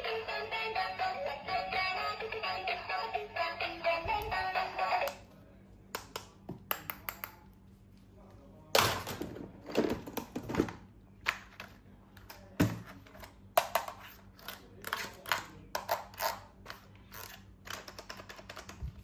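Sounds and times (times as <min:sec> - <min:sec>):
plastic toys clicking and clacking: 0:13.2 - 0:18.9.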